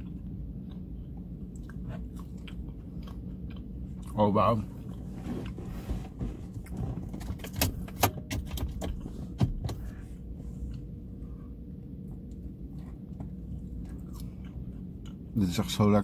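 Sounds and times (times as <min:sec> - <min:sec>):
person chewing food: 0:00.0 - 0:05.6, 0:10.6 - 0:15.3
car interior hum: 0:00.0 - 0:16.0.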